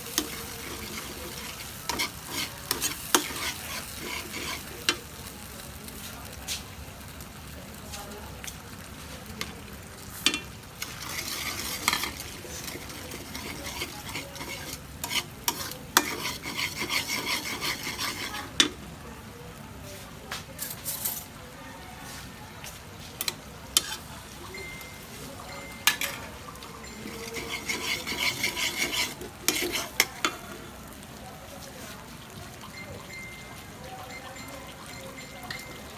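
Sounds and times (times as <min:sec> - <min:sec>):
utensil scraping a pan: 0:00.0 - 0:05.1, 0:10.1 - 0:18.8, 0:22.0 - 0:30.9
chicken sizzling in a pan: 0:00.0 - 0:35.9.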